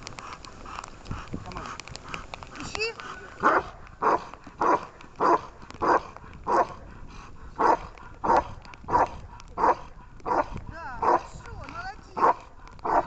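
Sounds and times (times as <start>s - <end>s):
dog barking: 3.4s - 6.8s, 7.6s - 11.3s, 12.2s - 13.0s.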